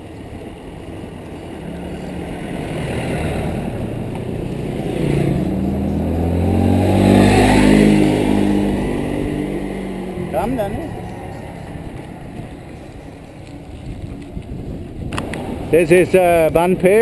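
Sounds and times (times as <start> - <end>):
vehicle engine passing by: 0.8 - 17.0.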